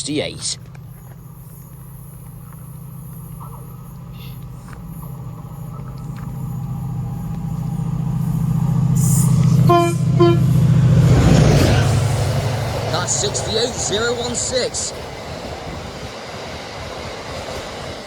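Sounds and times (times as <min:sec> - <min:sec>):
diesel locomotive engine rumbling: 0:00.0 - 0:18.0
train horn blasts: 0:09.0 - 0:13.2.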